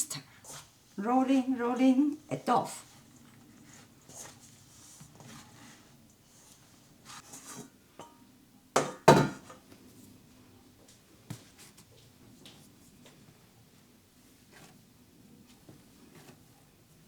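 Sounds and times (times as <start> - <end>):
dishes knocking: 8.8 - 9.6.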